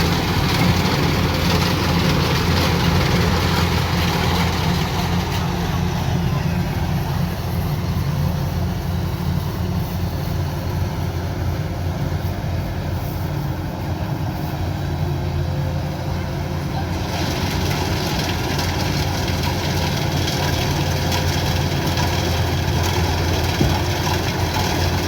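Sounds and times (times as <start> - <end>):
combine harvester engine drone: 0.0 - 25.0.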